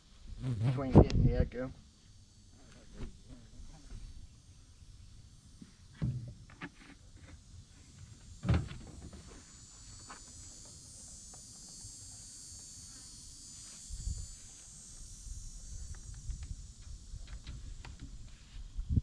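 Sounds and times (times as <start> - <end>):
high insect buzz: 0.0 - 19.0.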